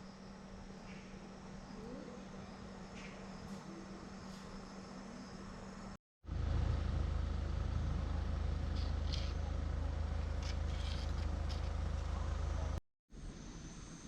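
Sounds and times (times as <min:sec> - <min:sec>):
car engine rumbling: 0:06.3 - 0:12.8.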